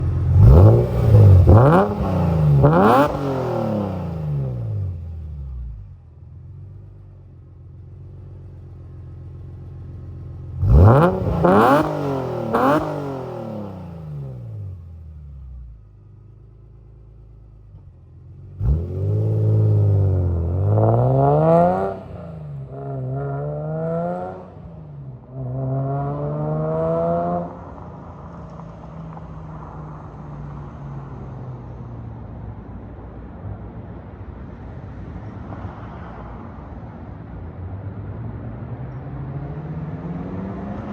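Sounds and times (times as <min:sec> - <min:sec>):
car engine revving and idling: 0:00.0 - 0:29.8.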